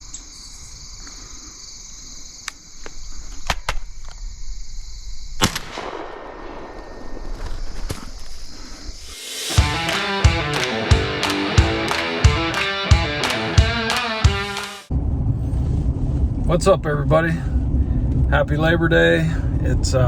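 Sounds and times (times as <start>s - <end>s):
insects chorus: 0.0s - 9.6s
shotgun firing: 5.4s - 7.2s.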